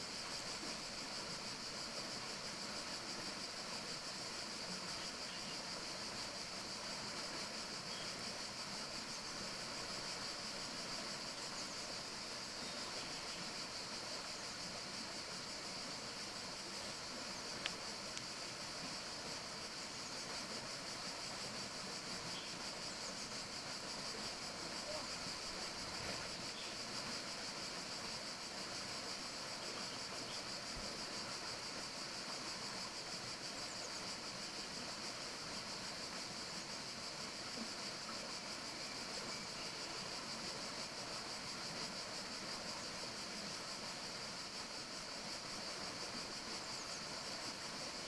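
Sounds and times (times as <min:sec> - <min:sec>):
forest hiss: 0:00.0 - 0:48.0
faint ticks: 0:16.8 - 0:18.6.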